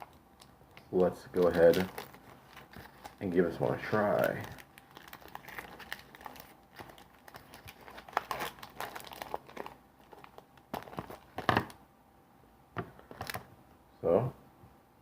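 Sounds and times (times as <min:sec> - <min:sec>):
candy wrapper crinkling and tearing: 0:00.0 - 0:11.8.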